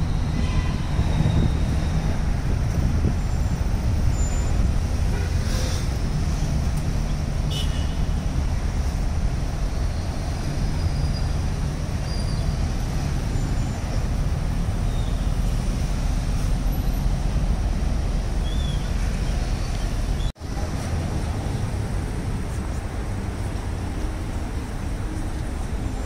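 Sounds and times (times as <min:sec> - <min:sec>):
city traffic hum: 0:00.0 - 0:26.0.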